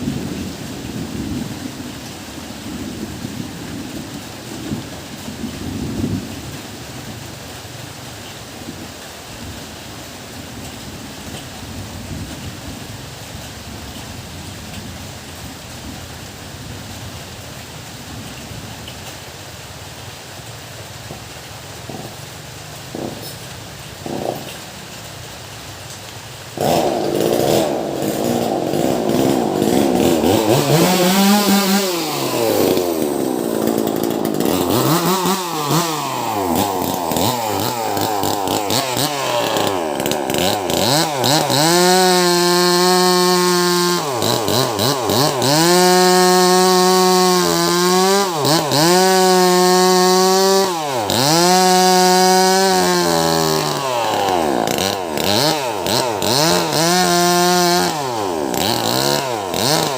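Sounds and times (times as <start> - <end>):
chainsaw cutting log: 21.8 - 25.0, 26.6 - 59.9.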